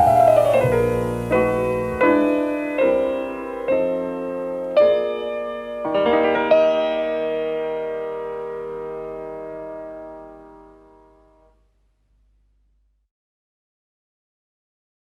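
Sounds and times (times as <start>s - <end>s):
piano chords: 0.0s - 11.6s.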